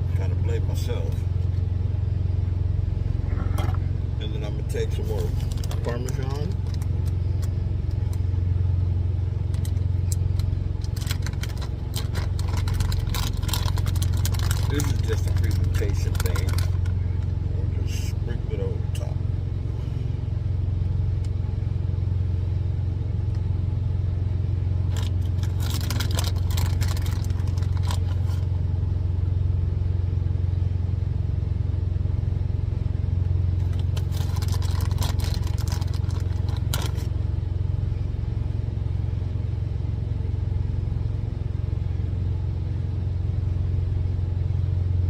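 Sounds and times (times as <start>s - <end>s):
truck engine idling: 0.0s - 45.0s
crackly rustling and clatter: 5.1s - 8.2s, 9.5s - 17.4s, 24.8s - 28.5s, 33.6s - 37.1s.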